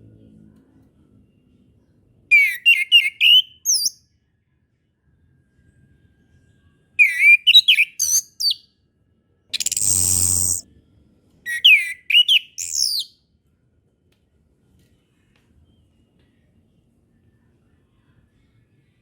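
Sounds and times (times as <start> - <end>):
thrush singing whistled notes: 2.3 - 3.9, 7.0 - 8.6, 9.6 - 10.6, 11.5 - 13.1
harsh buzzing call: 9.6 - 10.6.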